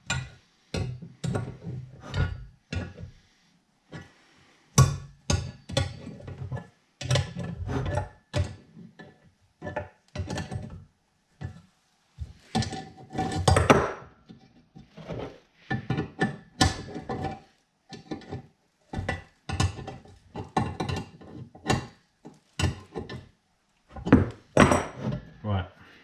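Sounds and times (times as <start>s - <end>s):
metal parts knocking and scraping: 0.0s - 3.1s, 12.2s - 13.9s, 14.8s - 23.3s.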